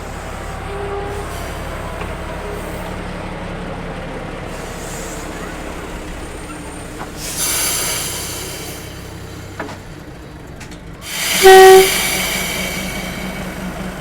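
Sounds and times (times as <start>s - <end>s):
locomotive air horn blast: 0.2s - 1.9s, 11.1s - 13.8s
air hissing: 4.5s - 9.5s, 11.0s - 14.0s.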